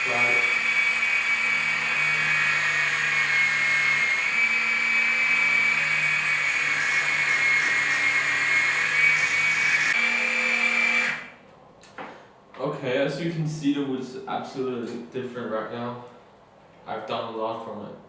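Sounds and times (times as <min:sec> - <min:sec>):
lathe motor whining: 0:00.0 - 0:11.3.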